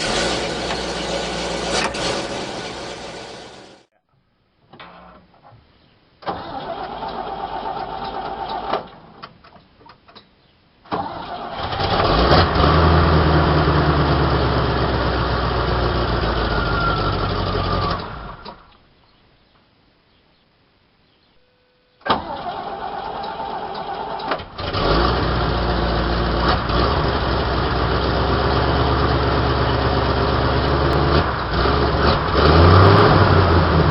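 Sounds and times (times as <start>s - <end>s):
starter motor cranking: 0.0s - 3.8s
truck engine running: 0.0s - 3.9s, 24.8s - 33.9s.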